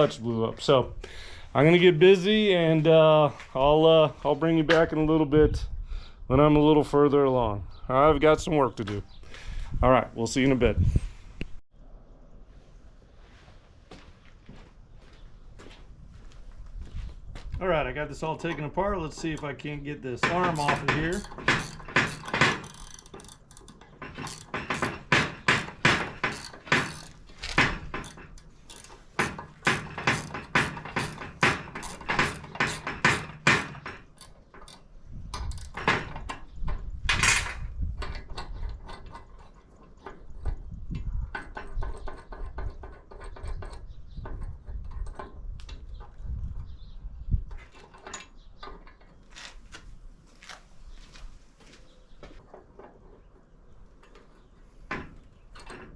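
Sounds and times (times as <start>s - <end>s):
metal parts clunking: 18.4s - 36.5s.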